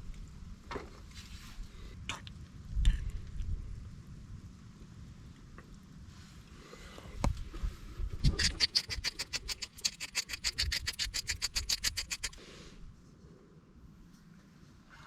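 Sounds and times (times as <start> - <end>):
fast scraping strokes: 8.2 - 12.6.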